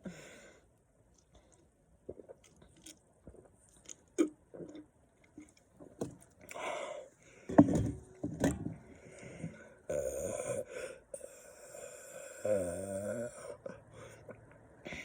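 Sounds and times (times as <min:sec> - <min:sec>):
person swallowing drink: 0:02.1 - 0:06.6.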